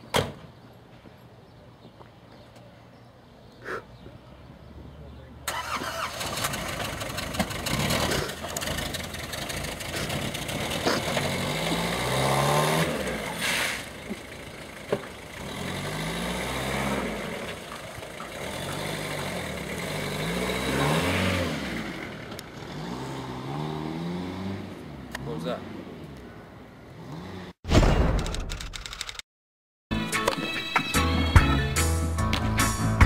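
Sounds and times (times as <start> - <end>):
small car engine revving: 5.5 - 25.2, 26.9 - 27.6
brief hiss: 13.4 - 13.9.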